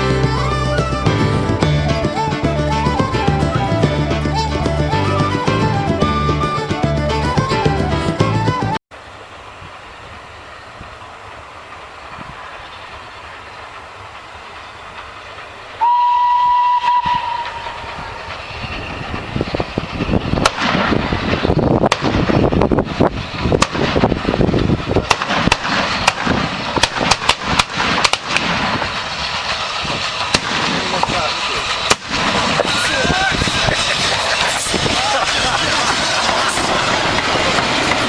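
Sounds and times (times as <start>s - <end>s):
train rumbling on rails: 0.0s - 38.0s
train horn blast: 15.8s - 17.9s
wheels clattering over rail joints: 17.2s - 38.0s.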